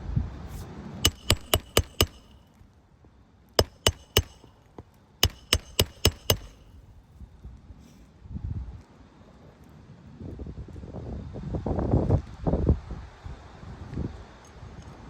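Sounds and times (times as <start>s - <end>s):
hammer striking roofing nails: 1.1s - 2.4s, 3.6s - 6.8s.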